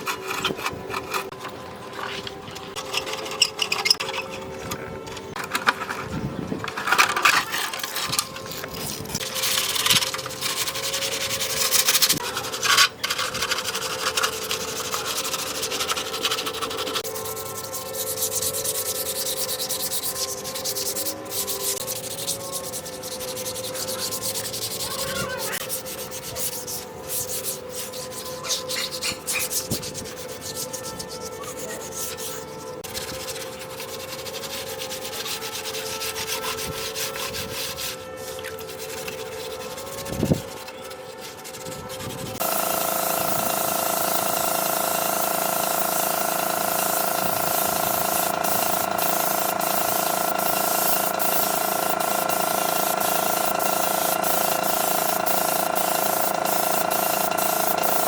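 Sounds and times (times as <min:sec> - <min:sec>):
power sander running: 0:42.0 - 0:58.0.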